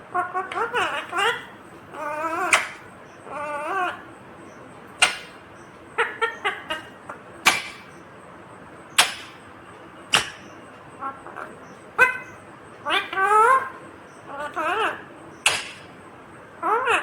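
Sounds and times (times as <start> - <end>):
parakeet squawking: 0.1 - 4.1, 5.0 - 7.9, 10.2 - 16.0, 16.6 - 17.0.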